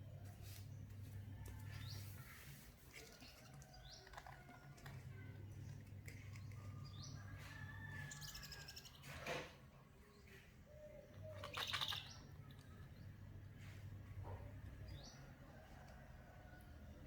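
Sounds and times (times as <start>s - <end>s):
faint bird chirps: 10.3s - 13.1s.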